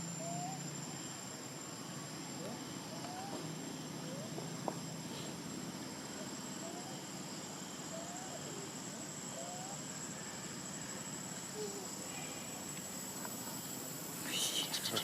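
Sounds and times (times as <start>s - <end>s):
insect drone: 0.0s - 15.0s
faint short chirping calls: 13.3s - 15.0s.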